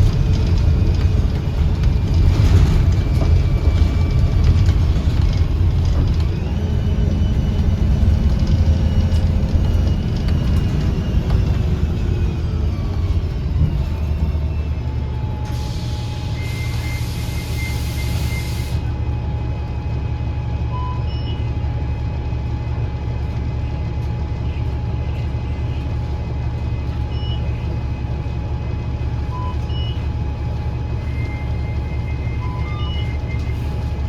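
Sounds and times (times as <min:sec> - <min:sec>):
bus engine low drone: 0:00.0 - 0:34.0
air hiss burst: 0:15.5 - 0:18.8
beeps: 0:20.7 - 0:21.5, 0:29.3 - 0:30.1, 0:31.0 - 0:33.8.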